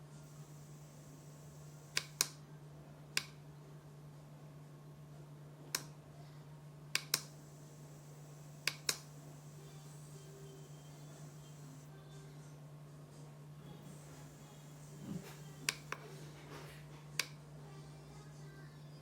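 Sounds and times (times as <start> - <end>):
faint steady low hum: 0.0 - 19.0
sharp short clicks: 8.6 - 10.4.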